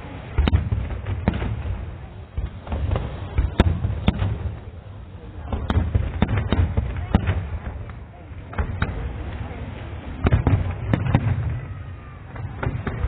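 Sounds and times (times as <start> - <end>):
fireworks bursting in sharp bangs: 0.0 - 13.0.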